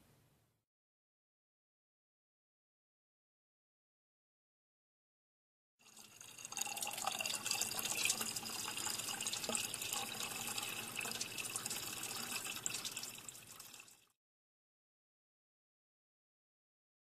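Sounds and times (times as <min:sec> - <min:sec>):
liquid pouring and splashing: 0:05.8 - 0:14.2.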